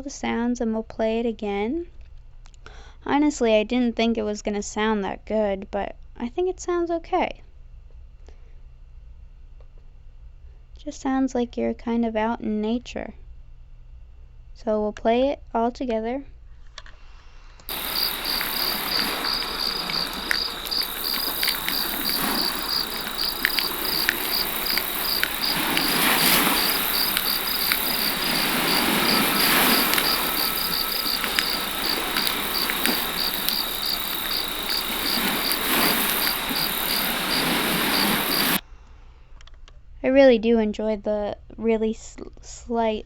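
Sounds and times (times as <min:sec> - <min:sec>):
singing bowl ringing: 0:17.7 - 0:36.9
campfire crackling: 0:17.7 - 0:38.6
crickets chirping: 0:17.7 - 0:38.6
ocean waves: 0:17.7 - 0:38.6.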